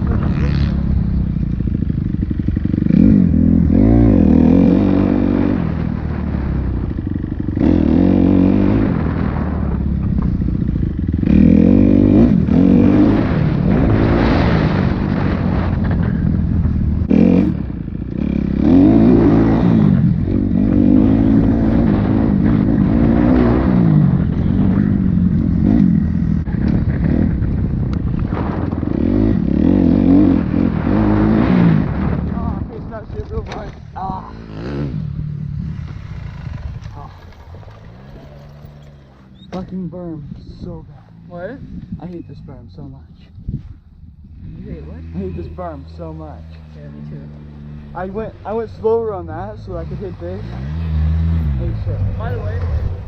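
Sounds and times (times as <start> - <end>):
dirt bike engine revving: 0.0 - 42.2, 44.2 - 53.0.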